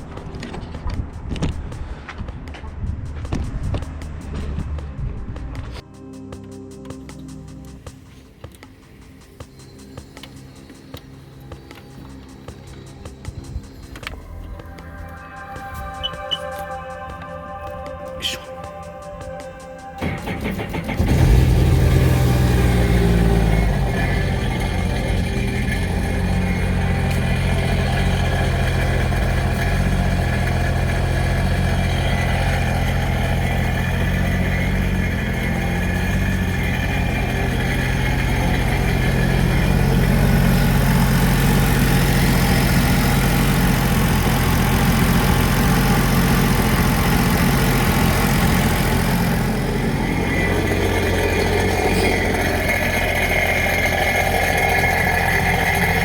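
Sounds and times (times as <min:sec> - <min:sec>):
personal watercraft engine running: 0:20.0 - 0:56.0.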